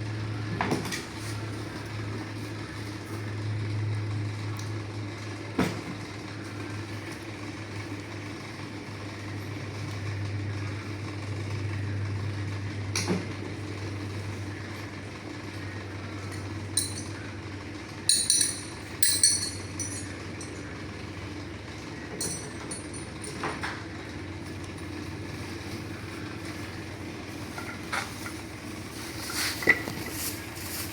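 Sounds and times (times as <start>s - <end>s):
low machinery hum: 0.0s - 30.9s
bright metal clinks: 16.7s - 17.2s, 18.1s - 20.7s, 22.1s - 23.5s.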